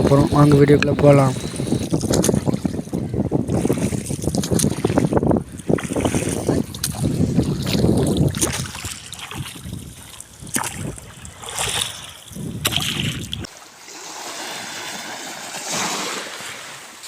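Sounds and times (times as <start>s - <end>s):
steady hiss of water: 0.0s - 1.9s
wind gusting on microphone: 0.0s - 13.5s
sea water splashing around boat: 0.0s - 17.0s.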